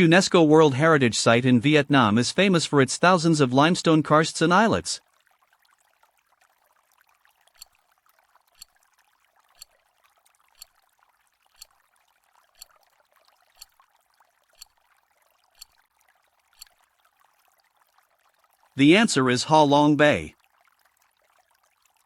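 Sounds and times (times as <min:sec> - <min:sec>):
clock-like ticks: 0:07.6 - 0:07.8, 0:08.6 - 0:08.8, 0:09.6 - 0:09.8, 0:10.6 - 0:10.8, 0:11.5 - 0:11.8, 0:12.6 - 0:12.8, 0:13.6 - 0:13.8, 0:14.6 - 0:14.8, 0:15.6 - 0:15.8.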